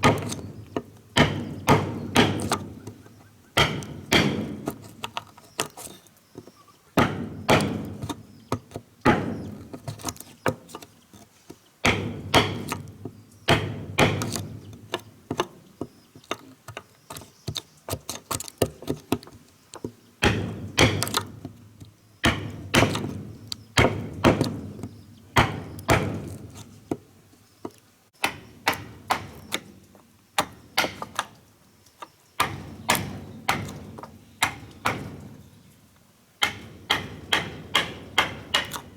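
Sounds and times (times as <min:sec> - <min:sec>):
tool striking wood: 0:00.0 - 0:03.0, 0:03.6 - 0:05.2, 0:07.0 - 0:09.9, 0:11.8 - 0:14.6, 0:19.8 - 0:21.6, 0:22.2 - 0:27.0, 0:28.2 - 0:29.7, 0:30.4 - 0:31.4, 0:32.4 - 0:35.3, 0:36.4 - 0:38.9.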